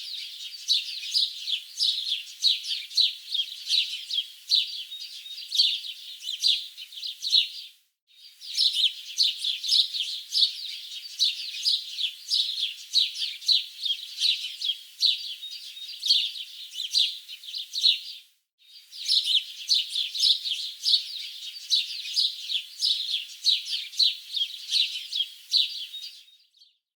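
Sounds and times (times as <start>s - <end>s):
wild birds chirping chorus: 18.8s - 26.2s.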